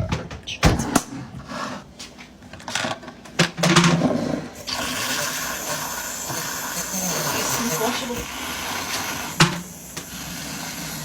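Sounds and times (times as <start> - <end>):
electric frother whirring: 4.6 - 11.0.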